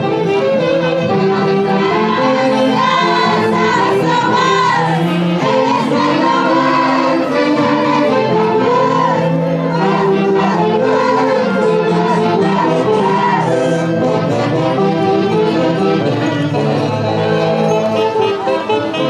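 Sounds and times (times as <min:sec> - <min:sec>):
orchestra playing melody: 0:00.0 - 0:19.0.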